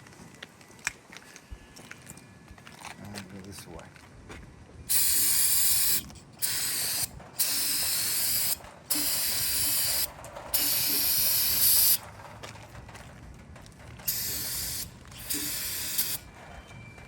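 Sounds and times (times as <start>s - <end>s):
high hissing spray bursts: 4.9s - 12.0s, 14.1s - 16.3s.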